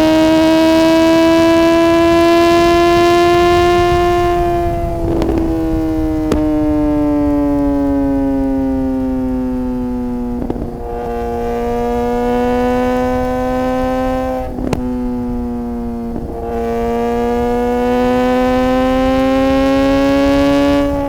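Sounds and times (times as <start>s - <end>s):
motorcycle engine accelerating: 0.0s - 21.0s
gear upshift cracks: 4.7s - 7.0s, 14.6s - 15.4s.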